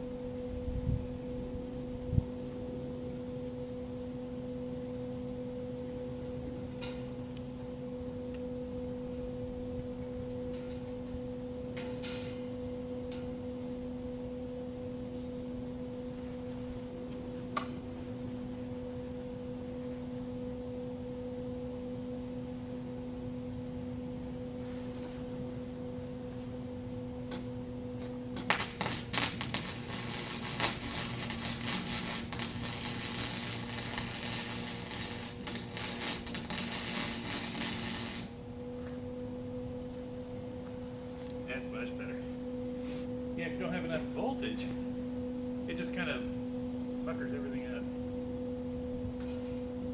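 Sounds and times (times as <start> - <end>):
electric welder humming: 0.0 - 49.9
welding arc crackling: 1.5 - 38.4.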